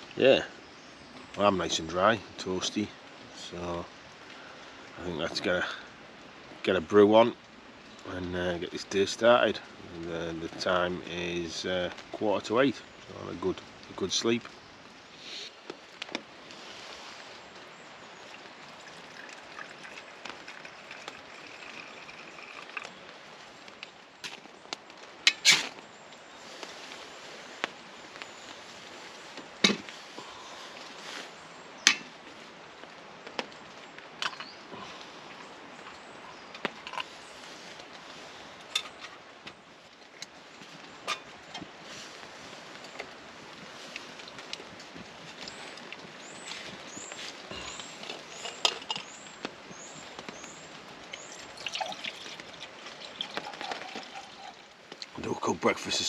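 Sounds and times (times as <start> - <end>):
rain hissing: 0.0 - 56.0.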